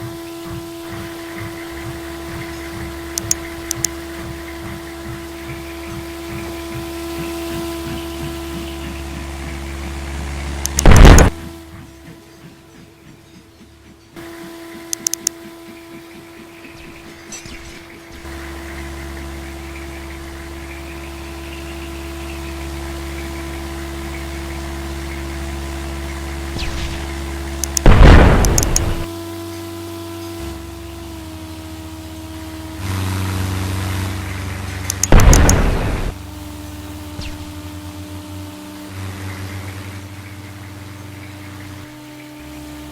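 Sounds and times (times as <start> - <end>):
airplane humming: 0.0 - 42.9
sharp clicks: 0.9 - 4.6, 10.6 - 11.6, 14.2 - 15.5, 26.6 - 29.1, 34.8 - 36.2.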